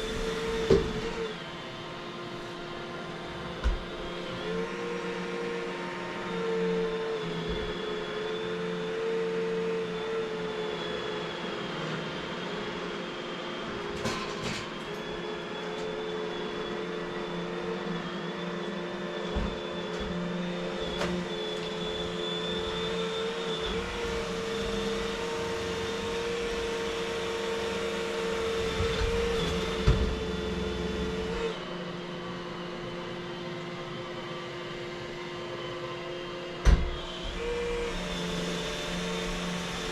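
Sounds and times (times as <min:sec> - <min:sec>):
vacuum cleaner running: 0:00.0 - 0:39.9
vacuum knocking against things: 0:00.6 - 0:01.1, 0:28.6 - 0:30.5.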